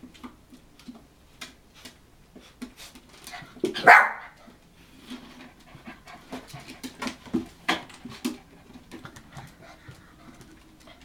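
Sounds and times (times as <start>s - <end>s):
puppies panting: 4.9s - 11.0s.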